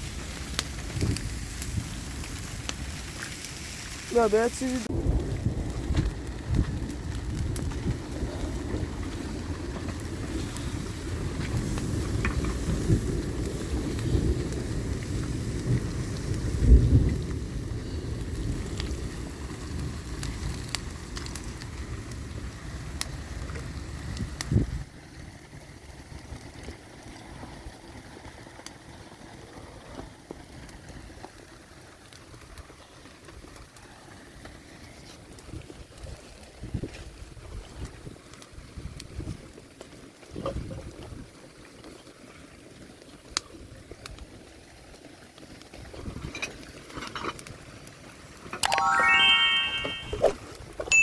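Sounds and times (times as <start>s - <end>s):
heavy rain rumble: 0.0s - 23.0s
wind: 0.0s - 51.0s
wind buffeting microphone: 0.5s - 3.1s, 4.8s - 20.6s.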